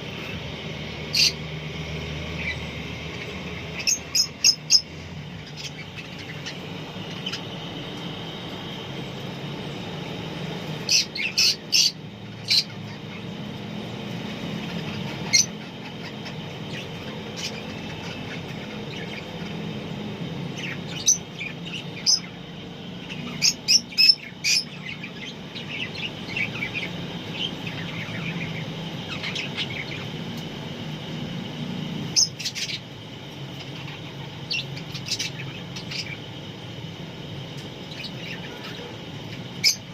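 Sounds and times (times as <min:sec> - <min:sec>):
soft bird twittering: 0:00.0 - 0:31.0, 0:32.0 - 0:39.9
low steady hum: 0:00.0 - 0:39.9
shrill bird chirps: 0:01.0 - 0:08.4, 0:10.8 - 0:13.4, 0:14.6 - 0:19.6, 0:20.5 - 0:30.2, 0:32.1 - 0:32.9, 0:33.6 - 0:36.3, 0:37.8 - 0:39.9.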